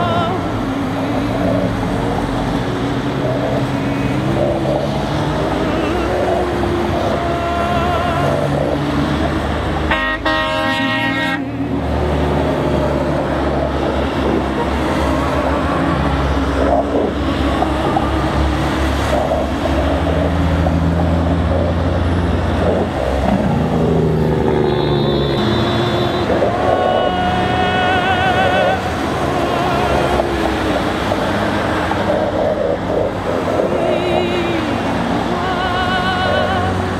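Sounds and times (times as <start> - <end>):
truck engines running: 0.0 - 36.9
truck horns honking: 3.7 - 4.8, 5.4 - 32.6.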